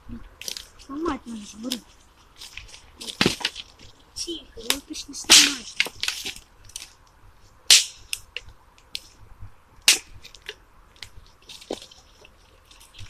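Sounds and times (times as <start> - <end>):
dry sticks snapping: 0.4 - 0.9, 4.6 - 9.2, 9.8 - 13.0.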